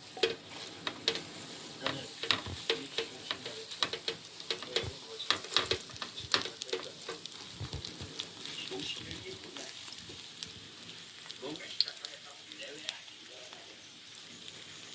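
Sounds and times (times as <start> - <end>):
pancakes sizzling in oil: 0.0 - 14.9
sharp clicks and taps: 1.9 - 8.2.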